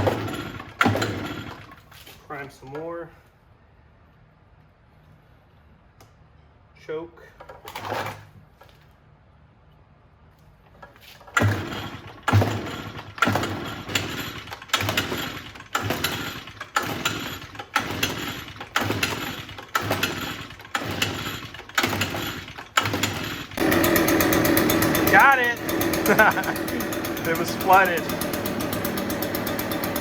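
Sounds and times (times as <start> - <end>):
leaf blower pull-start: 0.0 - 2.5, 10.8 - 30.0
leaf blower engine running: 11.4 - 30.0.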